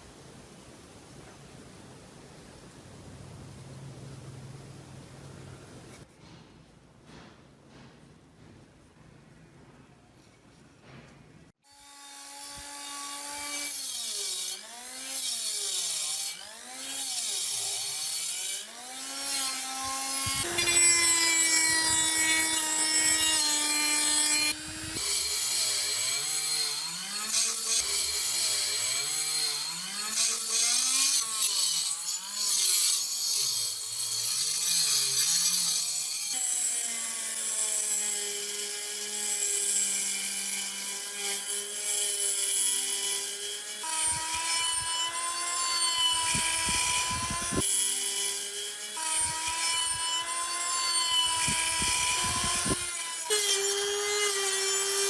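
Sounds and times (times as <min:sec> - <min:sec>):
power tool grinding metal: 0:11.6 - 0:55.0.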